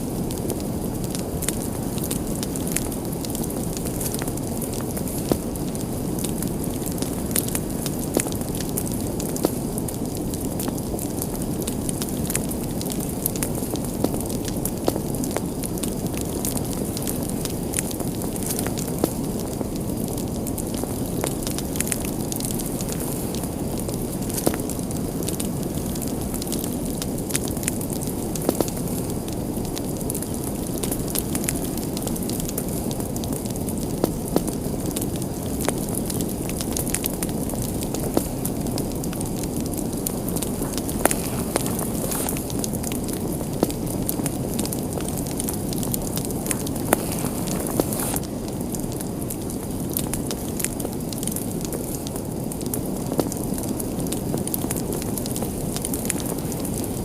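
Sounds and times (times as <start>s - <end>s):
fire burning with low rush: 0.0s - 57.0s
fire crackling: 0.0s - 57.0s.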